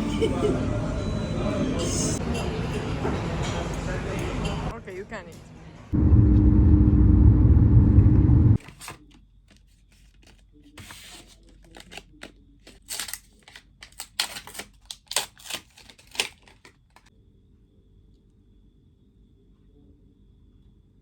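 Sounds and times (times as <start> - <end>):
loud low hum: 6.0 - 8.6
hand-handling clicks and crinkles: 8.6 - 17.1.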